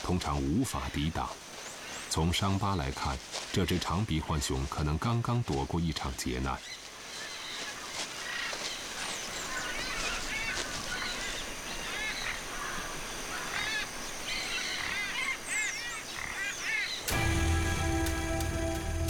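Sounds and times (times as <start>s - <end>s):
birds chirping: 0.0s - 19.0s
outdoor ambience hiss: 0.0s - 19.0s.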